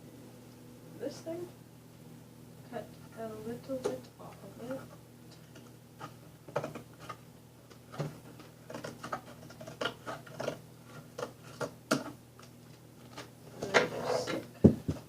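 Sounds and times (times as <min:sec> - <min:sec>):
window fan humming: 0:00.0 - 0:09.2.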